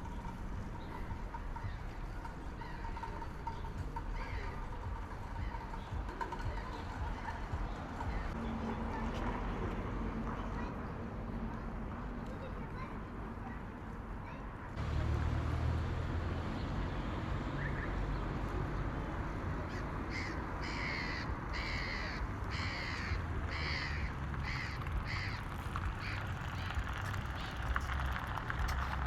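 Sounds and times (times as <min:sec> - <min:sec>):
crow cawing: 0:19.7 - 0:28.0
low background rumble: 0:21.4 - 0:29.0.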